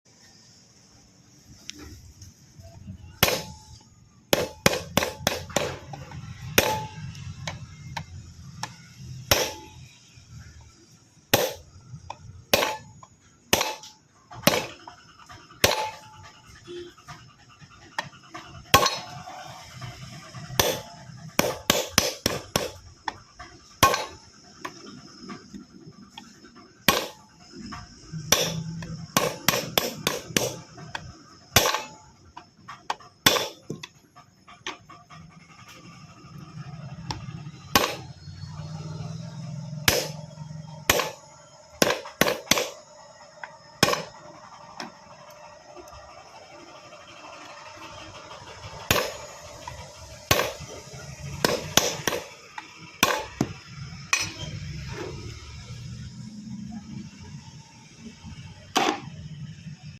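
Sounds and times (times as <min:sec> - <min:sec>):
faint high whine: 0:00.1 - 0:59.9.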